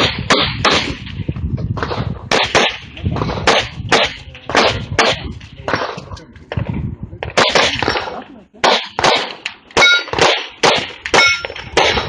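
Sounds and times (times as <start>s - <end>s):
handgun shots with echo: 7.4s - 12.0s.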